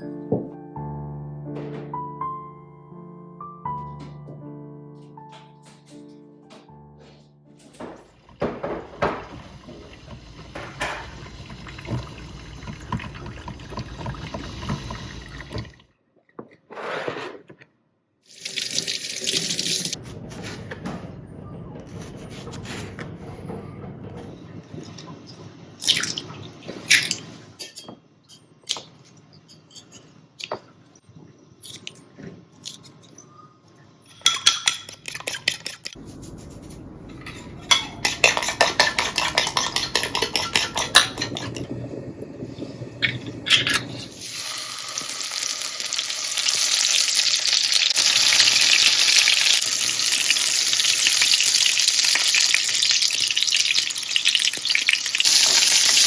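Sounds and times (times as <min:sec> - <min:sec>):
kitchen clicks and knocks: 0:01.5 - 0:02.1, 0:05.0 - 0:15.8, 0:26.7 - 0:30.8, 0:34.1 - 0:44.2
food sizzling in a pan: 0:37.7 - 0:56.0.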